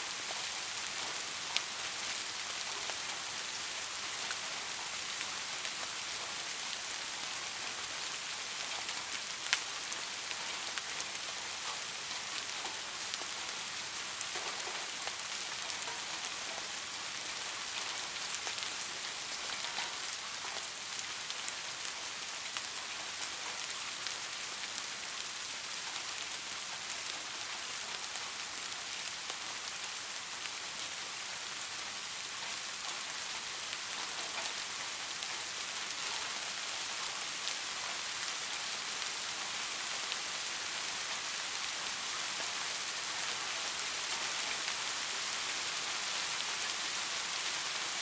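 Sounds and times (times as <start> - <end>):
steady rain: 0.0 - 48.0.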